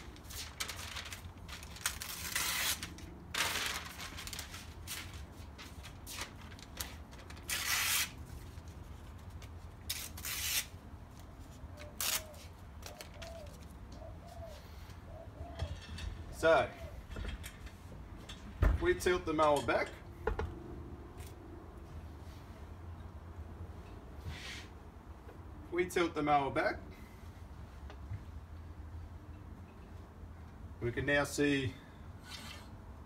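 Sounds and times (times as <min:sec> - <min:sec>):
newspaper rustling and tearing: 0:00.0 - 0:13.8.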